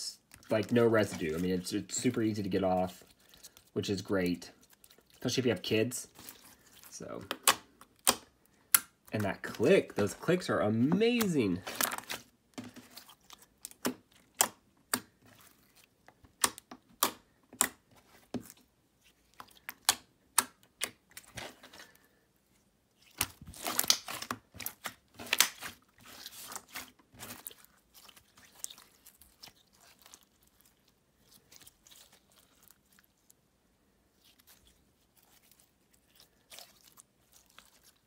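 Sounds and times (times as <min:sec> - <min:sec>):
slime clicking and crackling: 0:04.6 - 0:09.7, 0:12.9 - 0:17.8, 0:19.1 - 0:21.5, 0:23.0 - 0:33.4, 0:34.1 - 0:38.0.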